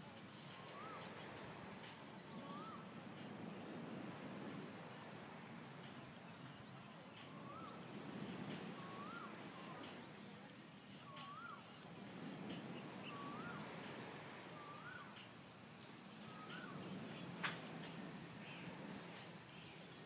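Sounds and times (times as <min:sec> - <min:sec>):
faint low background noise: 0:00.0 - 0:20.0
bird whistled call: 0:00.6 - 0:01.2, 0:02.4 - 0:02.9, 0:08.8 - 0:09.9, 0:11.0 - 0:11.7, 0:13.0 - 0:13.8, 0:14.5 - 0:15.2, 0:16.3 - 0:16.9.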